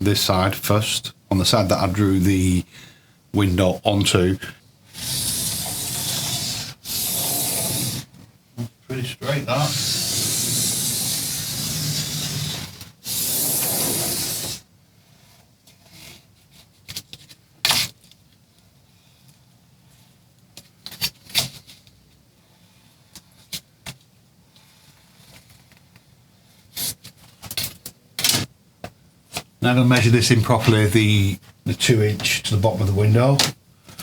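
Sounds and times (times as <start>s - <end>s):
pen scratching on plastic: 5.0s - 8.1s, 9.5s - 14.6s.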